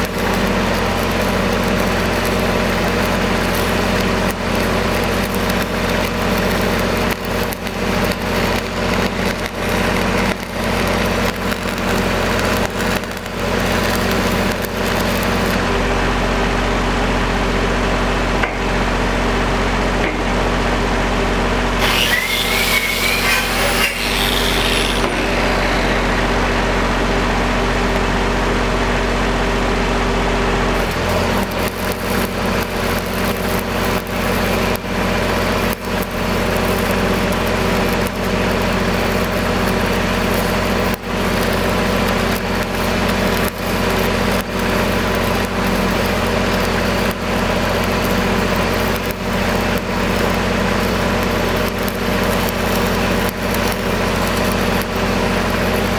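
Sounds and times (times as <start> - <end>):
stick welding crackle: 0.0 - 15.6, 21.8 - 27.0, 30.7 - 55.9
welding machine engine running: 0.0 - 15.8, 21.6 - 28.4, 30.6 - 55.9
short wavering squeal: 21.8 - 26.9.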